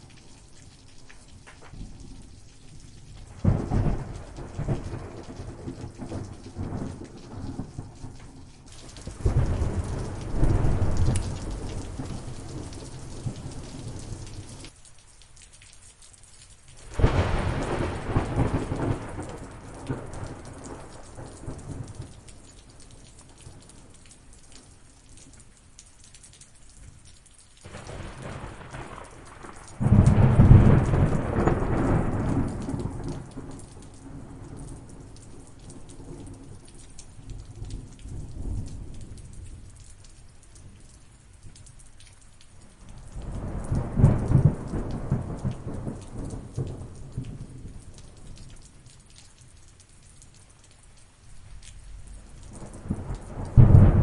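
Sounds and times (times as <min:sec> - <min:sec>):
steady rain falling: 0:00.0 - 0:54.0
thunder rolling: 0:09.0 - 0:14.2, 0:27.7 - 0:33.5, 0:43.2 - 0:47.6, 0:52.6 - 0:54.0.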